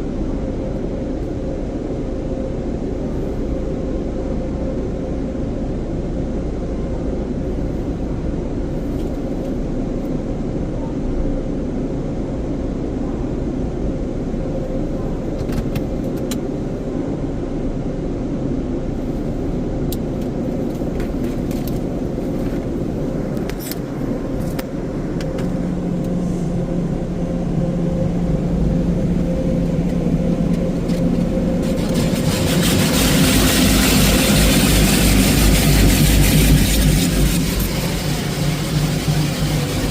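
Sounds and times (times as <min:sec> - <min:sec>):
car wash machine humming: 0:20.4 - 0:39.9
lower tone: 0:21.6 - 0:39.9.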